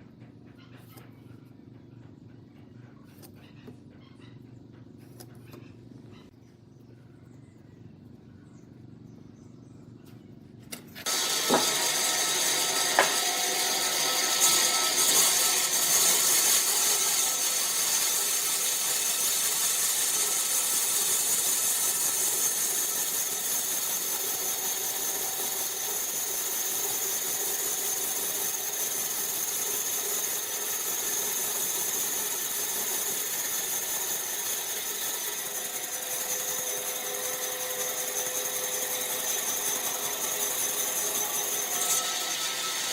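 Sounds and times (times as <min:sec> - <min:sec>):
power machine high whine: 0:11.0 - 0:42.9.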